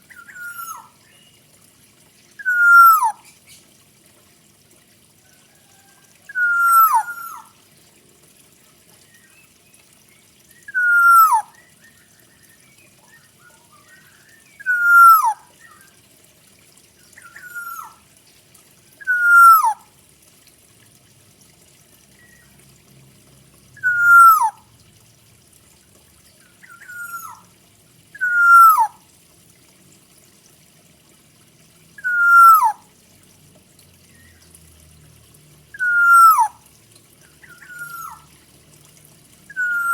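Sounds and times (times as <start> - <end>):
high bird twitter: 0.1 - 1.3, 2.4 - 3.5, 6.3 - 7.5, 10.6 - 15.9, 17.2 - 18.0, 19.0 - 19.8, 23.8 - 24.6, 26.6 - 27.4, 28.2 - 28.9, 32.0 - 32.8, 35.8 - 36.5, 39.5 - 39.9
oriole whistled call: 0.1 - 1.3, 2.4 - 3.3, 6.3 - 7.5, 10.5 - 16.0, 17.2 - 18.0, 19.0 - 19.8, 23.8 - 24.6, 26.6 - 27.4, 28.2 - 29.0, 32.0 - 32.8, 35.7 - 36.6, 37.4 - 38.3, 39.5 - 39.9.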